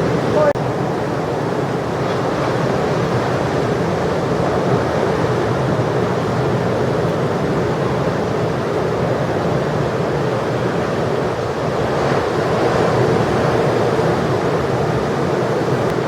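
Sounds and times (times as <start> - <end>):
heavy ocean surf breaking: 0.0 - 16.0.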